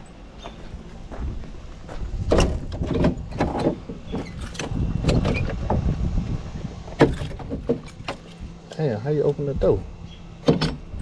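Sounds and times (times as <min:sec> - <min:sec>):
low rumble: 0:01.0 - 0:08.6.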